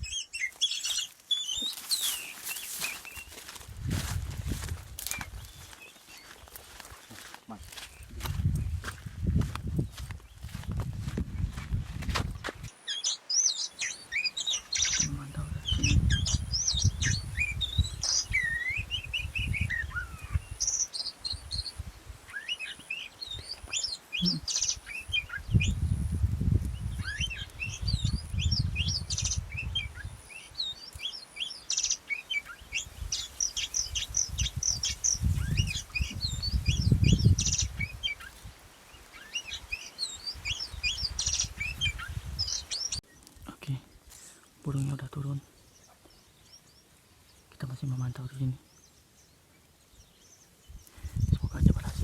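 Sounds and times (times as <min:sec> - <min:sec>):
songbird chirps and warbled whistles: 0:00.0 - 0:09.0, 0:12.5 - 0:51.9
wind rumble on microphone: 0:03.4 - 0:05.8, 0:07.6 - 0:12.7, 0:14.9 - 0:22.3, 0:25.1 - 0:30.8, 0:32.6 - 0:38.7, 0:39.6 - 0:43.5, 0:50.6 - 0:52.0.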